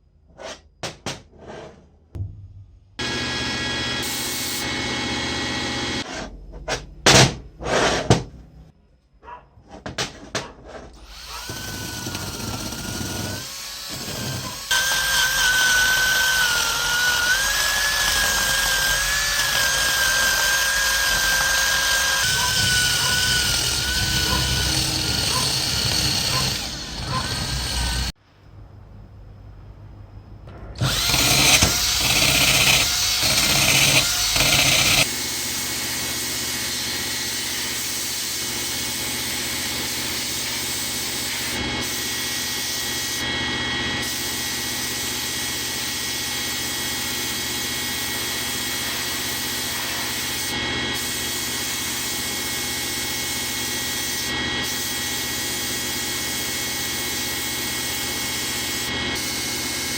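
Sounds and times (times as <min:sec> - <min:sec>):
power tool whining: 0:03.0 - 0:06.0, 0:11.0 - 0:28.2, 0:30.8 - 0:41.6.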